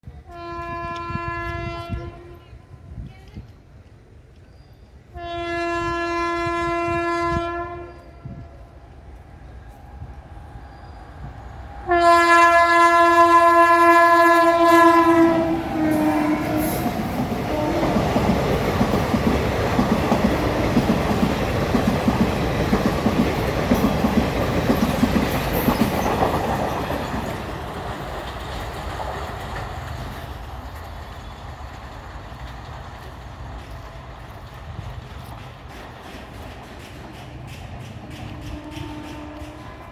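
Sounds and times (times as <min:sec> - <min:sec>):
clickety-clack of wheels over rail joints: 0:00.0 - 0:39.9
locomotive horn: 0:00.2 - 0:02.6, 0:05.1 - 0:08.8, 0:11.6 - 0:18.6, 0:38.2 - 0:39.9.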